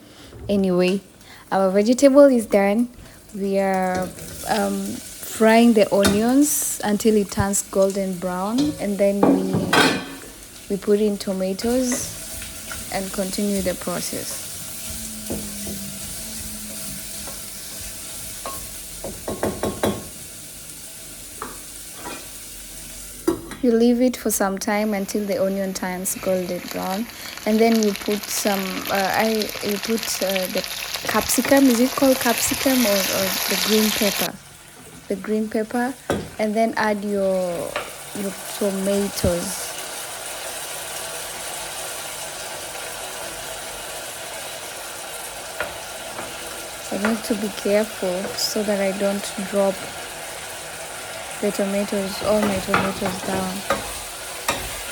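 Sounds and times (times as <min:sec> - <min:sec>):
onions sizzling in a pan: 0:00.7 - 0:54.9
spoon scraping a pan: 0:11.7 - 0:18.8, 0:52.2 - 0:54.9.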